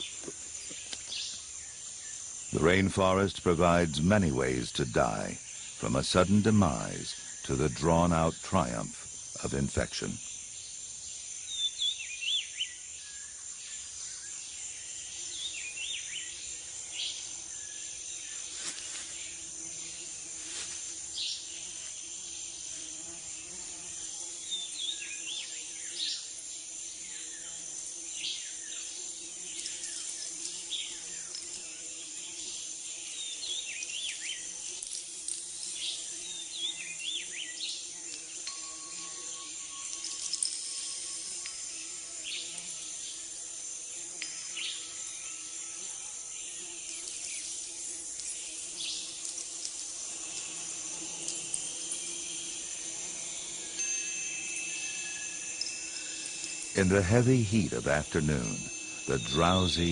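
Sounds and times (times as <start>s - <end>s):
insects trilling: 0.0s - 59.9s
faint low drone: 55.9s - 59.9s.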